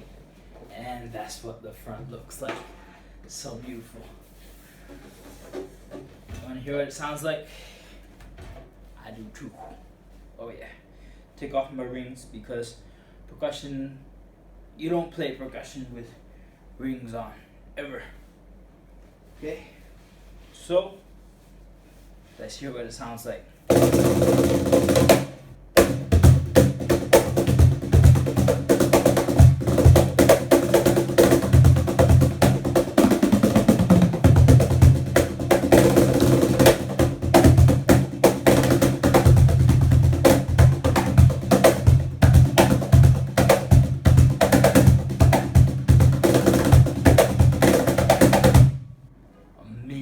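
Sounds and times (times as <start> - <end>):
cajon played by hand: 23.7 - 48.8.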